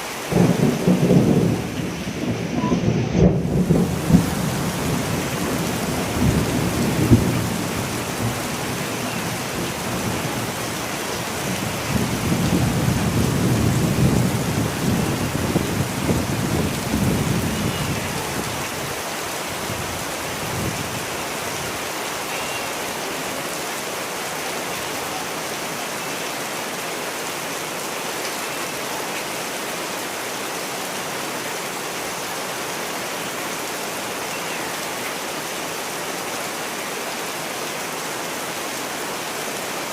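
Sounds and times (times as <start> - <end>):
steady rain falling: 0.0 - 39.9
rolling thunder: 0.3 - 9.0.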